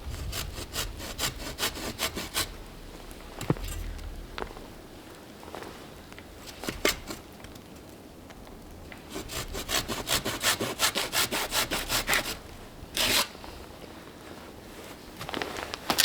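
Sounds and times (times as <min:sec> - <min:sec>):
hand saw cutting wood: 0:00.0 - 0:03.8, 0:06.5 - 0:07.3, 0:09.1 - 0:13.4
loud saw scrape: 0:00.1 - 0:04.9, 0:09.1 - 0:13.4.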